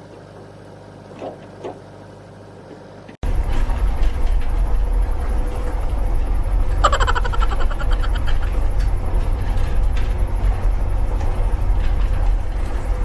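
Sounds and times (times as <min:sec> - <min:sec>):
motor rumbling: 0:00.0 - 0:13.0
low hum: 0:03.2 - 0:13.0.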